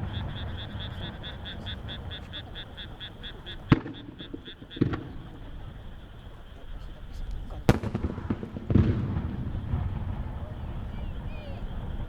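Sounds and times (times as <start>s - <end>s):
fast high-pitched calls: 0.0s - 6.1s
rumbling fireworks background: 0.0s - 12.0s
firework shell bursts: 3.7s - 5.6s, 7.6s - 10.9s.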